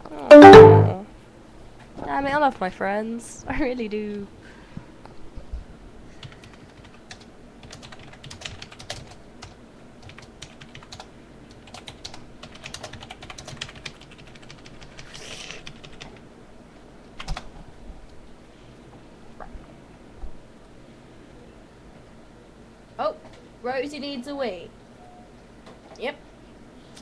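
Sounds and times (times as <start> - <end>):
typing on computer keyboard: 6.2 - 16.2, 17.2 - 17.5.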